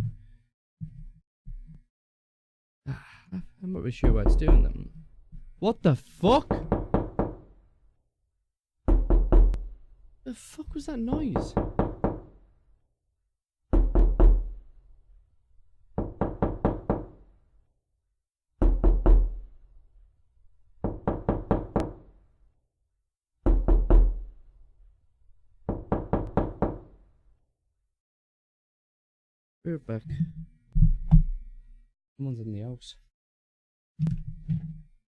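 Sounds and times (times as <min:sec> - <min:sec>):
heavy banging on a house: 0:06.3 - 0:07.6, 0:08.9 - 0:09.8, 0:11.0 - 0:12.4, 0:13.7 - 0:14.6, 0:16.0 - 0:17.2.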